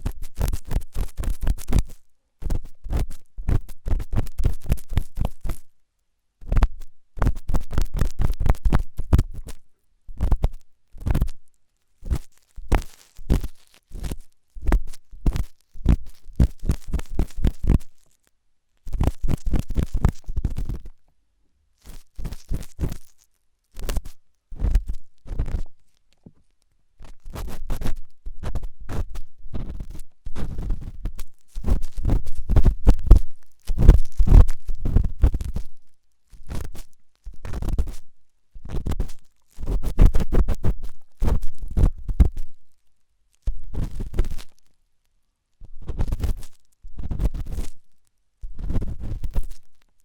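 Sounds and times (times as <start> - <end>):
ear pick scraping microphone: 27.0 - 35.8.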